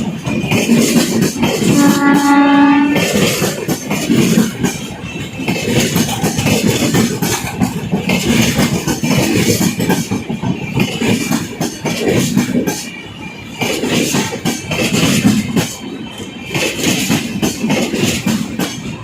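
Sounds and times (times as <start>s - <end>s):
train wheels clattering: 0.0s - 19.0s
locomotive horn: 1.6s - 3.4s.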